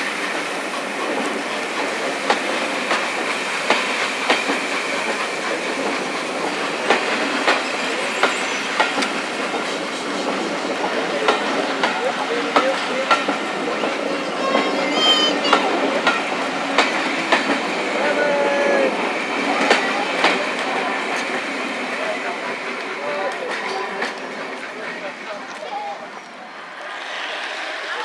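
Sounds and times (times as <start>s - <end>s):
wheels clicking over rail joints: 0.0s - 17.9s
train carriages rolling: 0.0s - 28.0s.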